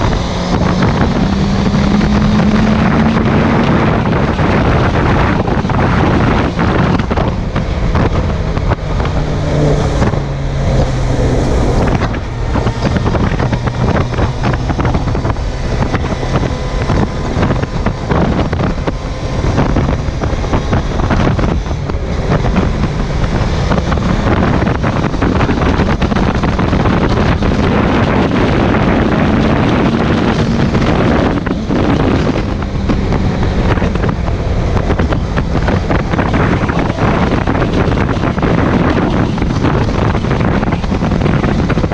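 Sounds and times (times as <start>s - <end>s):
motorcycle engine running: 0.0s - 41.9s
wind rushing over microphone: 0.0s - 41.9s.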